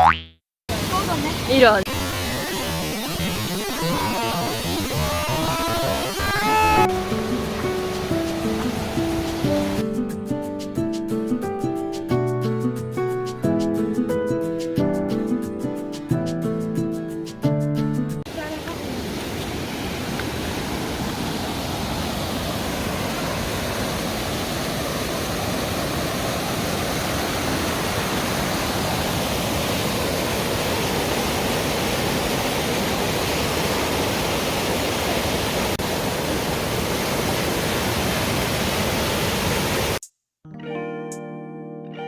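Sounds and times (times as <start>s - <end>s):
stream water rushing: 0.7s - 9.9s, 18.3s - 40.0s.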